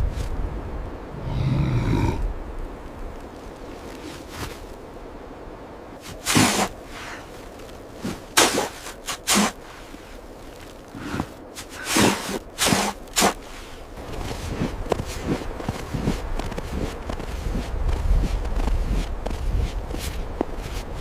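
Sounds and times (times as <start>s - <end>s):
short swishing noises: 8.0s - 9.6s.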